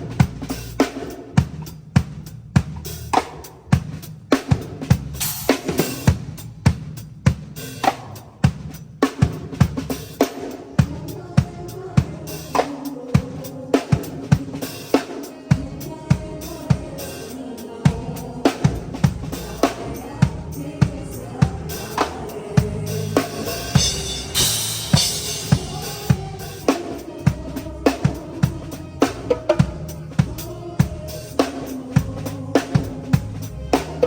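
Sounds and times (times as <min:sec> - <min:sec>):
bass guitar notes: 0:00.0 - 0:04.0, 0:17.9 - 0:34.0
drum kit groove: 0:00.0 - 0:34.0
cymbal wash: 0:22.9 - 0:26.7.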